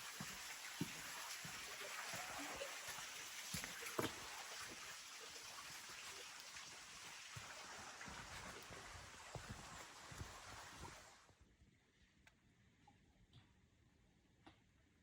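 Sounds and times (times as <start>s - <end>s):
water rushing in channel: 0.0s - 11.3s.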